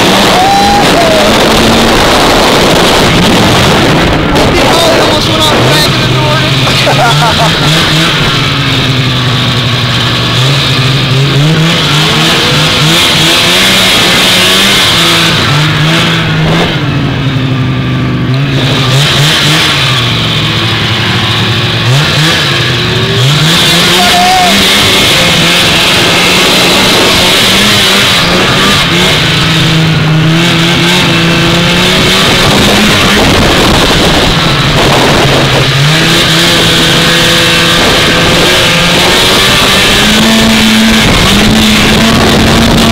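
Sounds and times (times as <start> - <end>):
snowmobile engine running: 0.0 - 42.9.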